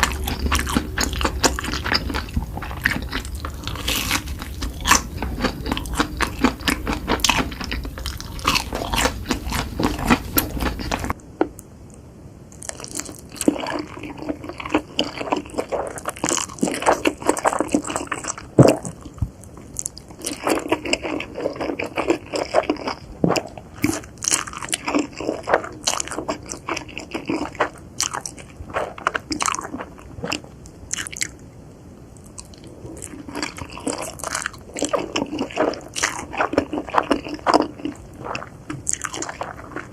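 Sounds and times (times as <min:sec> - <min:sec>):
chewing and crunching food: 0:00.0 - 0:11.2, 0:12.5 - 0:31.4, 0:32.2 - 0:39.9.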